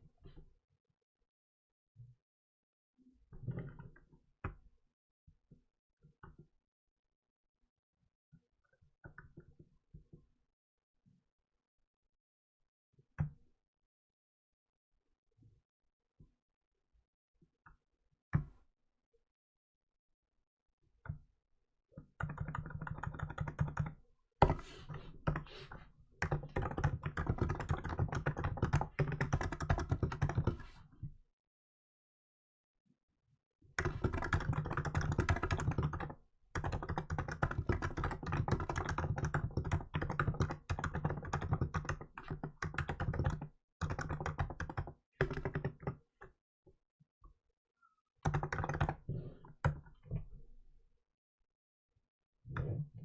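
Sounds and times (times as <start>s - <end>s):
fast keyboard typing: 22.2s - 30.8s, 33.8s - 46.0s, 48.3s - 49.8s.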